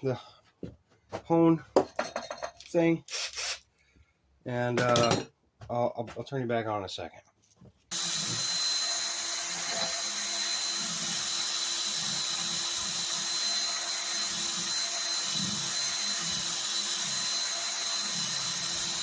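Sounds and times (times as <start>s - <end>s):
power drill whining: 7.9s - 19.0s.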